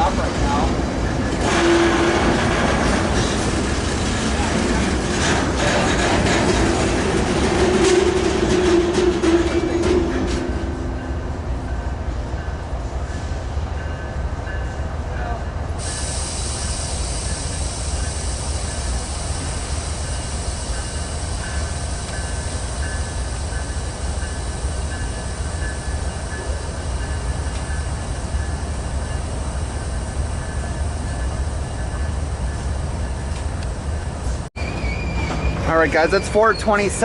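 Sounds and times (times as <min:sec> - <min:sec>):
train wheels rumbling on rail: 0:00.0 - 0:37.0
high wheel squeal: 0:34.6 - 0:37.0.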